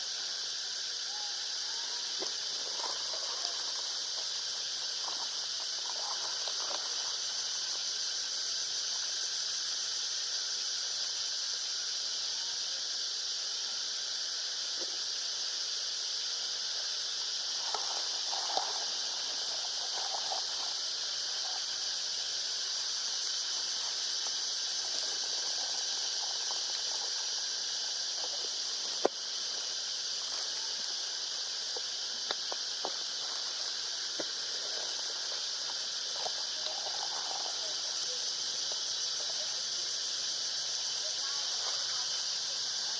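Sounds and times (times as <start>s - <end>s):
high-pitched outdoor hiss: 0.0s - 42.9s.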